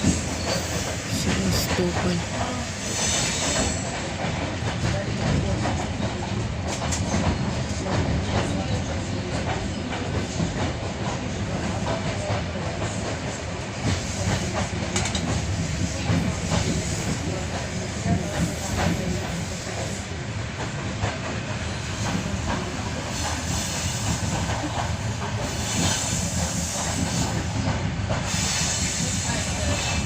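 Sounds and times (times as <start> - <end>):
train rumbling: 0.0 - 30.0.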